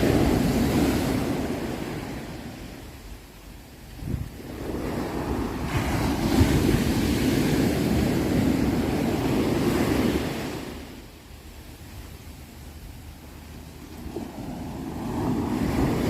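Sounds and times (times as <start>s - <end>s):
sea waves breaking: 0.0s - 16.0s
steady low rumble: 10.6s - 16.0s.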